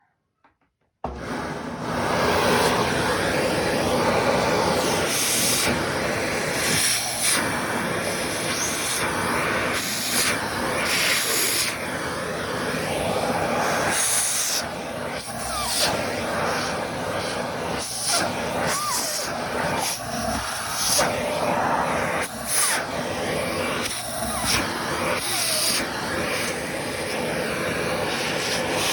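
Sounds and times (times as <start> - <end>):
vacuum cleaner running: 1.0 - 28.9.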